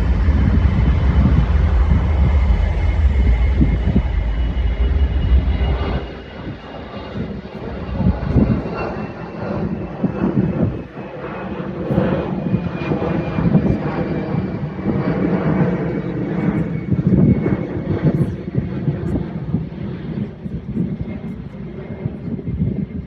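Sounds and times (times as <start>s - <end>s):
faint high whine: 0.0s - 9.2s
jet engines rumbling: 0.0s - 23.0s.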